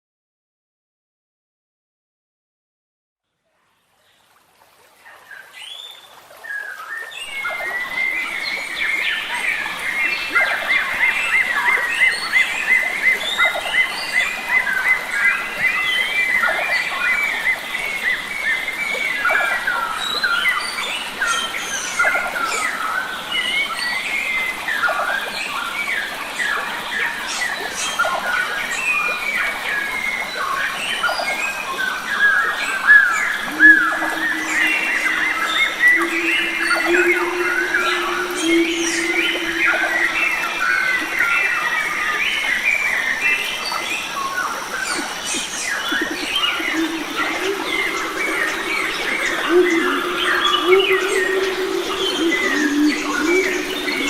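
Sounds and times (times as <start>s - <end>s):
steady background hiss: 5.0s - 54.0s
birds chirping and whistling: 33.0s - 42.4s, 44.8s - 54.0s
low steady tone: 33.4s - 41.9s, 45.4s - 54.0s.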